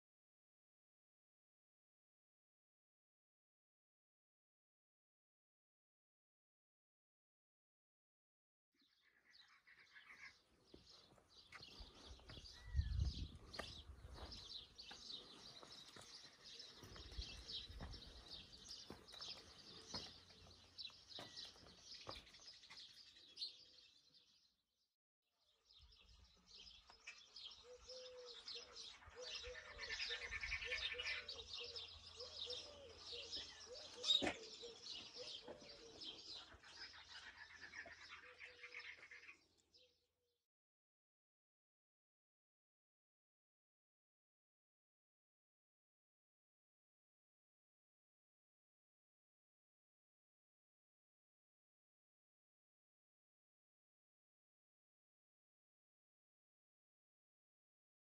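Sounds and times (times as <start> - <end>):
small birds chirping and twittering: 8.8 - 24.7, 25.4 - 40.2
lower repeated bird call: 27.6 - 39.4.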